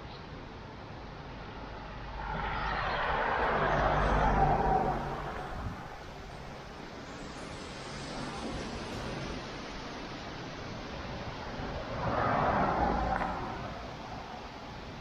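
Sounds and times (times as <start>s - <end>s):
background hiss: 0.0s - 15.0s
vehicle passing by: 1.5s - 6.8s.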